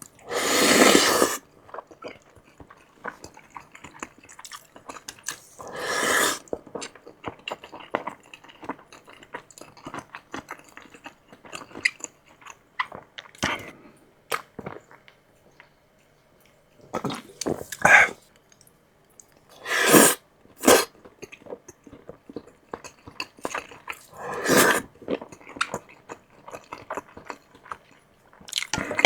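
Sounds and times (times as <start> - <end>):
wet chewing with mouth clicks: 0.0 - 15.7, 17.0 - 29.0
loud slurps: 0.2 - 1.4, 5.6 - 6.4, 17.4 - 18.2, 19.6 - 20.9, 24.1 - 24.9.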